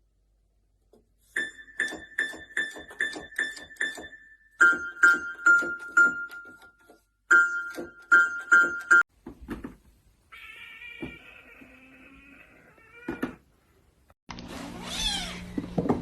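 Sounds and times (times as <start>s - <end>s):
cat meowing: 10.3s - 13.4s, 14.8s - 15.5s.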